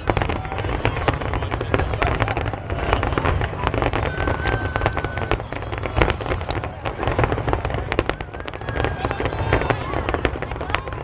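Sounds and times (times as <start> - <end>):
firework crackles and pops: 0.0 - 11.0
high firework whistle: 0.0 - 11.0
low rumble of firework bursts: 0.0 - 11.0.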